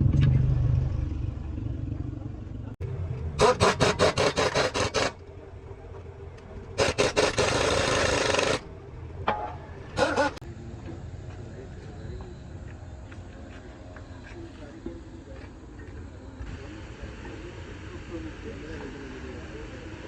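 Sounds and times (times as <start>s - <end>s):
low engine rumble: 0.0s - 20.0s
rasping scraping strokes: 3.4s - 5.2s, 10.0s - 10.4s.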